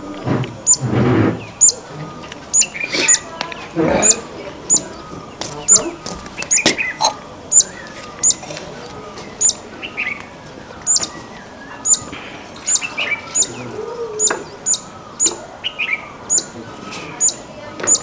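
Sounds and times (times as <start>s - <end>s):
soft low bird chirps: 9.3s - 18.0s.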